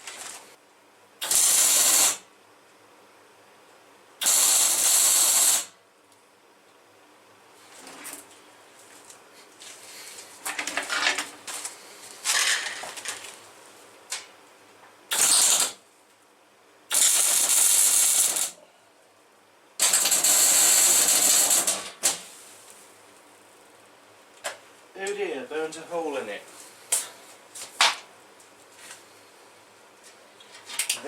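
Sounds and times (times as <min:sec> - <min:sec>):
arc welder crackling hiss: 0:01.2 - 0:02.3, 0:04.2 - 0:05.8, 0:15.1 - 0:15.9, 0:16.9 - 0:18.6, 0:19.8 - 0:23.8, 0:26.1 - 0:27.8.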